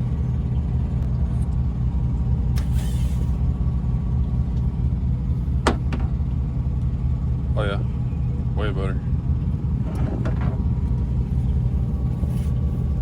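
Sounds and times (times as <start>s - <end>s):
diesel truck engine idling: 0.0s - 13.0s
air hiss: 2.6s - 3.4s.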